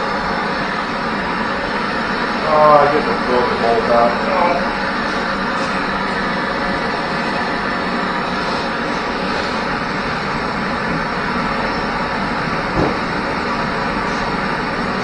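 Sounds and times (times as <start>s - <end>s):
knock: 12.8s - 13.0s.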